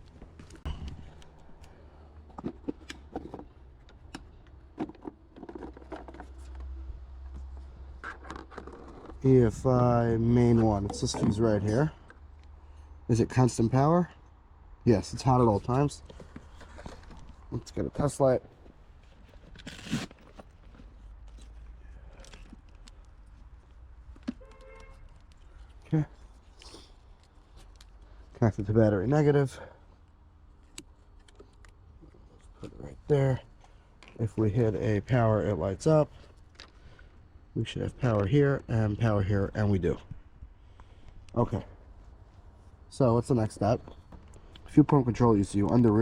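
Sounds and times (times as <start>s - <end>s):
rustle: 15.6s - 28.2s
hands handling small parts: 15.9s - 28.1s.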